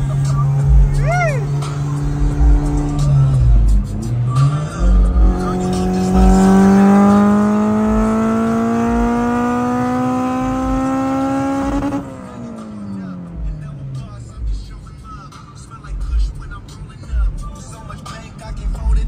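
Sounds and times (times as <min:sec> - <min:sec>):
car engine revving under load: 0:00.0 - 0:14.6.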